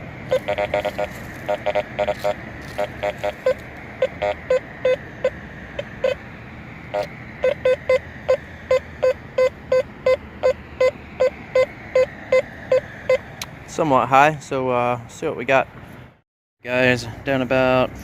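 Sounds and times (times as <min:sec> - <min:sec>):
metal detector beeps: 0:00.3 - 0:06.2, 0:06.9 - 0:13.3.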